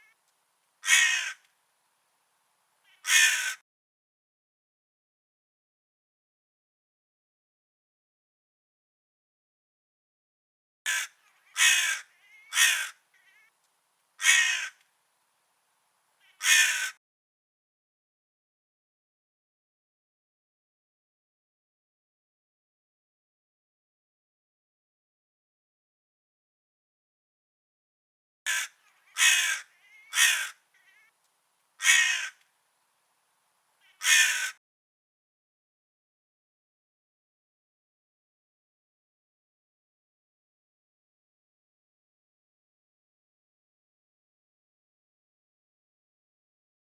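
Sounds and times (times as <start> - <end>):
crow cawing: 0.8 - 1.5, 2.9 - 3.6, 10.9 - 13.5, 14.2 - 14.8, 16.2 - 17.0, 28.5 - 31.1, 31.8 - 32.4, 33.8 - 34.6.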